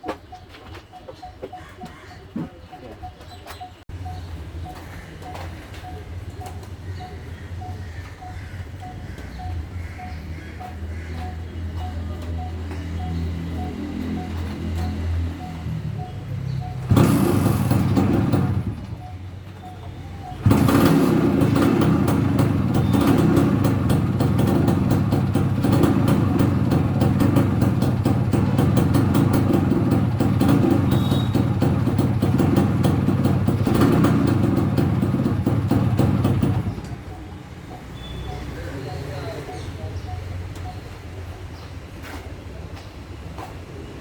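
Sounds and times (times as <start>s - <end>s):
two-stroke engine exhaust: 11.4s - 40.6s.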